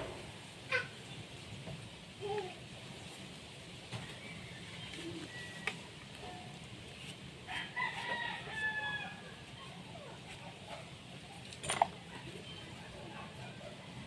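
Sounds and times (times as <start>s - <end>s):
rooster crowing: 7.5s - 9.5s.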